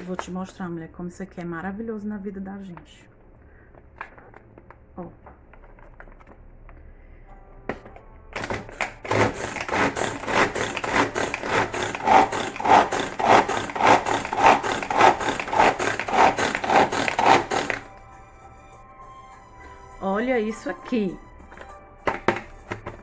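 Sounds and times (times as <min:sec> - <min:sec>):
food chopper chopping: 0:08.4 - 0:17.9.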